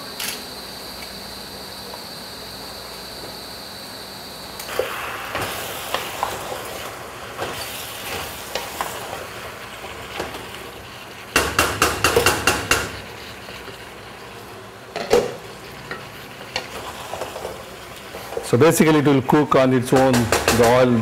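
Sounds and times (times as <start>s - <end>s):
food sizzling in a pot: 1.4s - 19.4s
knocks: 20.0s - 20.8s.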